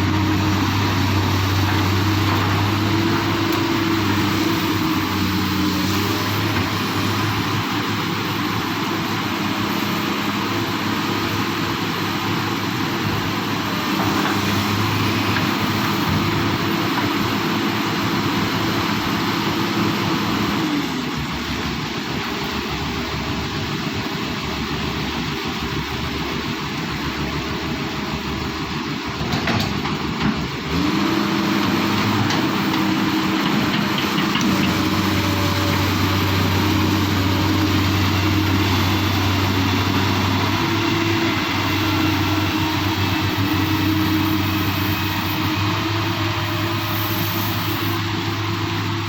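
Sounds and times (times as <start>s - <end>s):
excavator diesel engine humming: 0.0s - 49.0s.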